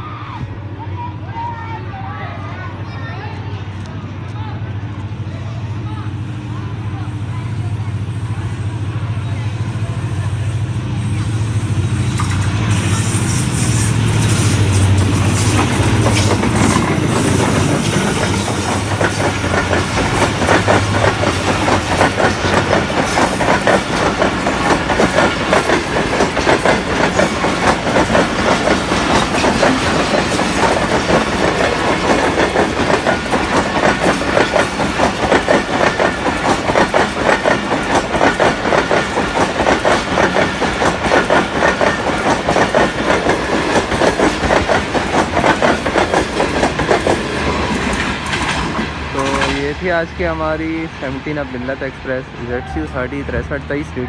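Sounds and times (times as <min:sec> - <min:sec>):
diesel locomotive engine drone: 0:00.0 - 0:54.0
train wheels clattering over joints: 0:12.1 - 0:51.3.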